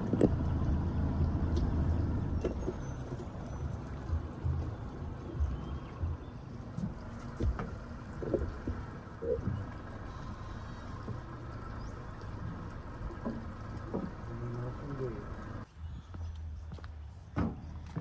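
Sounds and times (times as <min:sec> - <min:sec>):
engine idling: 0:00.0 - 0:15.7
knocks and clunks: 0:05.4 - 0:10.0, 0:10.9 - 0:14.7.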